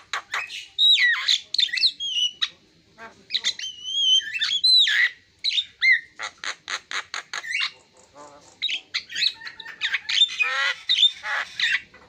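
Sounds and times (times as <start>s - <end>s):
bird singing chattering song: 0.0s - 12.0s.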